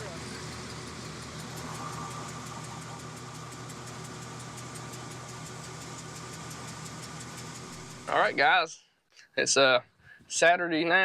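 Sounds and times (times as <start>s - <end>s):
fast regular ticking: 0.0s - 8.5s
engine idling: 0.0s - 8.6s.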